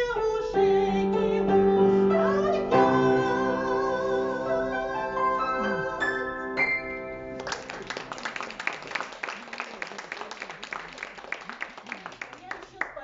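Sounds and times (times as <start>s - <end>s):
waltz song with keyboard: 0.0s - 7.4s
audience applause: 7.3s - 13.0s.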